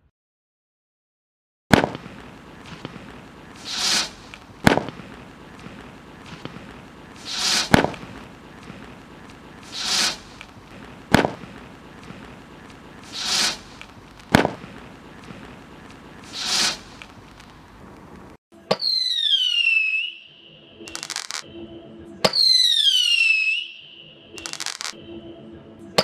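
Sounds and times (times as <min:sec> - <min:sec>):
sharp crack: 0:01.7 - 0:18.9, 0:20.9 - 0:21.5, 0:24.4 - 0:25.0
roman candle whooshing shots: 0:01.7 - 0:20.1, 0:20.9 - 0:21.5, 0:24.4 - 0:25.0
falling whistle-like tone: 0:18.8 - 0:21.4, 0:22.3 - 0:24.9.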